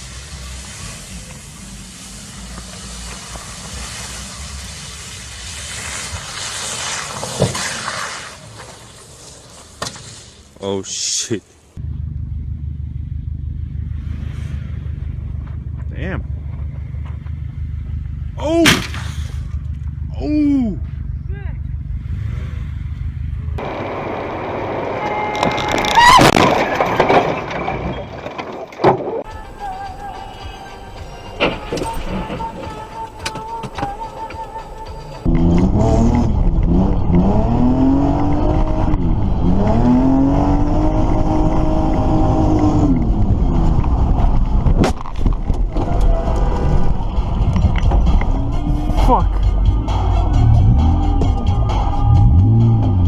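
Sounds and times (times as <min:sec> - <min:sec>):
car tyre and road noise: 0:00.0 - 0:53.0
clattering: 0:25.3 - 0:29.3.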